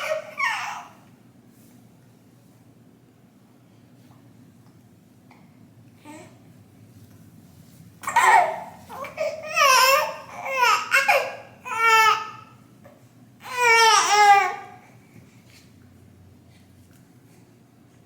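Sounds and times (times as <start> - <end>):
baby cooing and babbling: 0.0 - 1.0, 8.0 - 12.4, 13.4 - 14.8.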